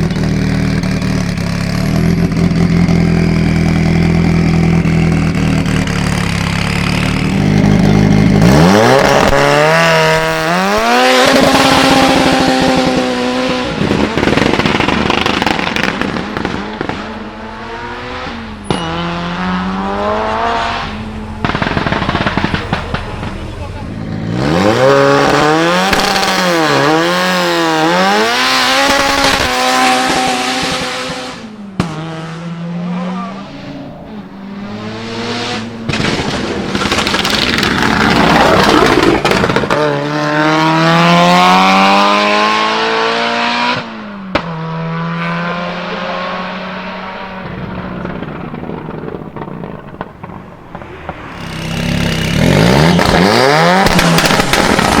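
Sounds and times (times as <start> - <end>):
car engine revving hard: 0.0 - 55.0
exhaust bangs: 0.0 - 55.0.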